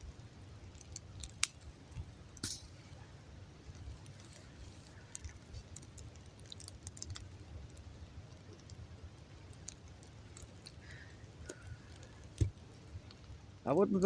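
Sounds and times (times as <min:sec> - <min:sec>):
campfire crackling: 0:00.0 - 0:14.0.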